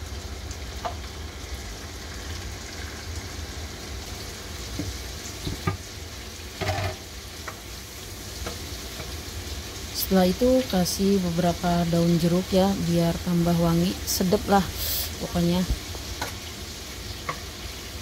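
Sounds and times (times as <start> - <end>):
squid sizzling in frying pan: 0.0 - 18.0
wooden spatula knocking on pan: 4.7 - 5.8.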